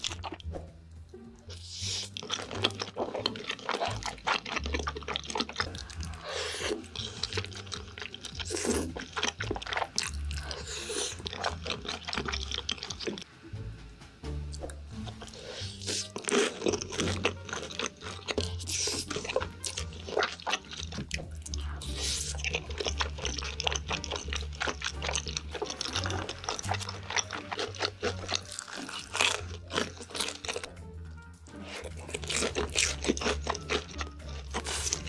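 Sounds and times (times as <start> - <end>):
person chewing crunchy food: 0.0 - 0.6, 1.5 - 13.3, 14.5 - 35.0
background music: 0.0 - 35.0.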